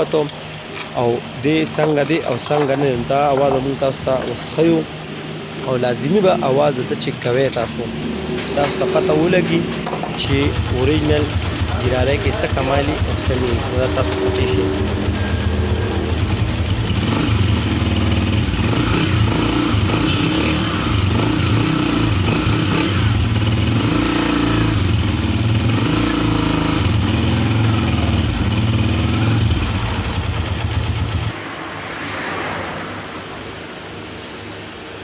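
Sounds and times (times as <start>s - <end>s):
motorcycle engine running: 7.8s - 31.4s.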